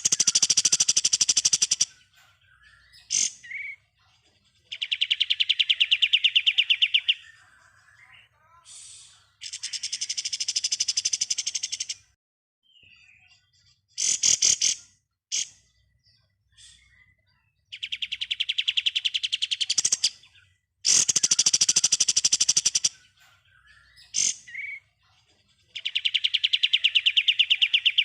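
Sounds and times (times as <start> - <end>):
songbird fast trills: 0.0 - 2.0, 20.9 - 23.0
bird sharp chirps: 0.0 - 3.9, 4.7 - 28.0.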